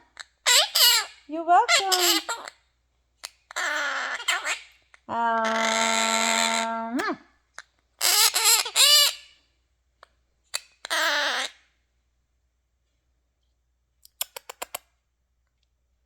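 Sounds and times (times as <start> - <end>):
parrot calling: 0.1 - 2.6, 3.2 - 9.4, 10.5 - 11.7.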